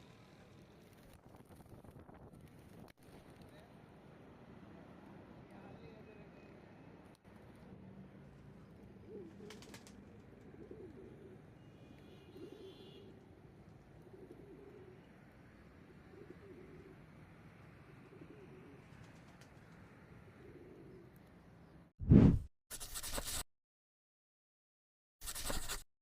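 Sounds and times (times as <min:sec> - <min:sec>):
pigeons cooing: 0:09.0 - 0:11.5, 0:14.0 - 0:15.2, 0:15.8 - 0:17.1, 0:17.8 - 0:19.2, 0:20.4 - 0:21.2.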